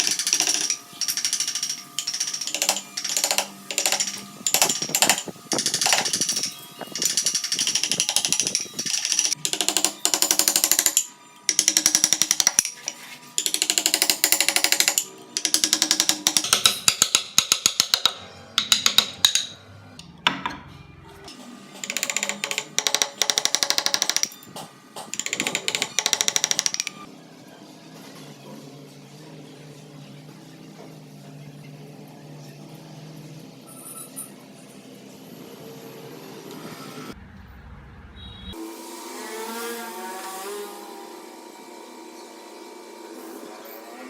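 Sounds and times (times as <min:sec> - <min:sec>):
power carving tool hammering wood: 0:00.0 - 0:20.6, 0:21.8 - 0:27.1.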